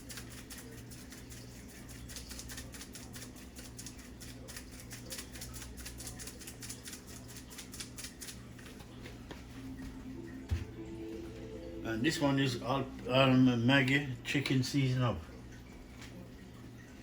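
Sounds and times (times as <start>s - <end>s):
seasoning shaker rattling: 0.0s - 8.8s
steady low hum: 0.0s - 17.0s.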